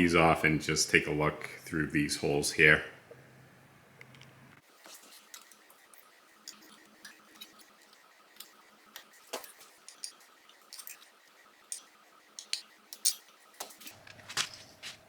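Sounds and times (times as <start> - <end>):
clicks of metal parts and tools: 8.4 - 11.1, 11.7 - 14.6.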